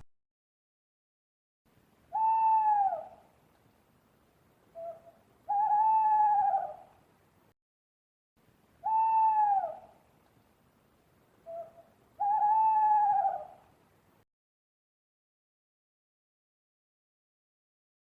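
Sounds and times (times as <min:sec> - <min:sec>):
owl hooting: 0:02.1 - 0:03.3, 0:04.7 - 0:06.9, 0:08.8 - 0:10.0, 0:11.4 - 0:13.7.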